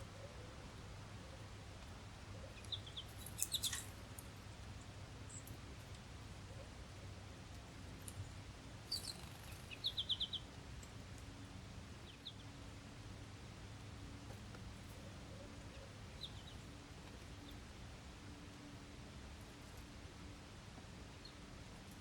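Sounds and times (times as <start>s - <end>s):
low background noise: 0.0s - 22.0s
small birds chirping: 2.4s - 4.2s, 8.1s - 10.6s, 15.6s - 17.6s.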